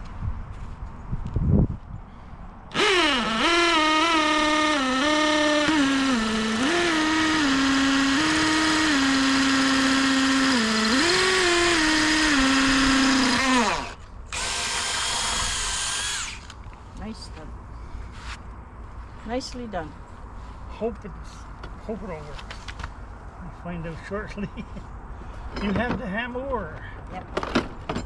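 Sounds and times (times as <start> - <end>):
hammer drill boring through wood: 2.7 - 16.6.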